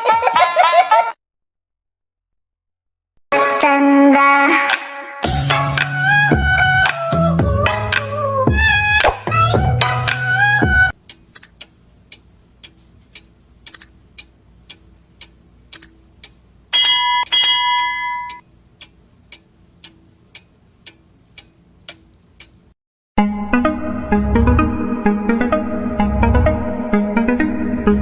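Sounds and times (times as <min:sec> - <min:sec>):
clock ticking: 0:11.0 - 0:22.7
bell chime ringing: 0:16.8 - 0:18.4.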